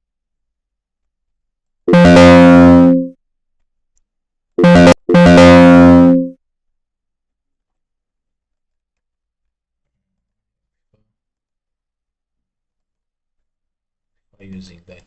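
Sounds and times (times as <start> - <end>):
computer alert chime: 1.9 - 3.1, 4.6 - 6.3.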